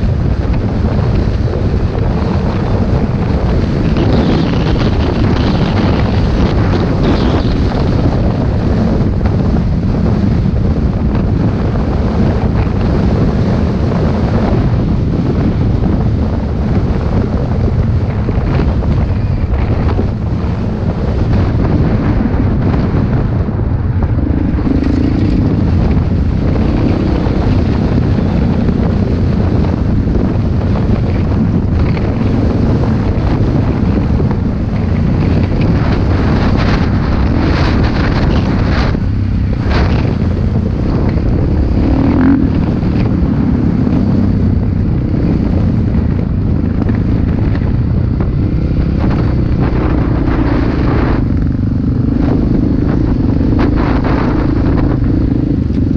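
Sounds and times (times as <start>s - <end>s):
motocross bike engines: 0.0s - 55.9s
wind buffeting microphone: 0.0s - 55.9s.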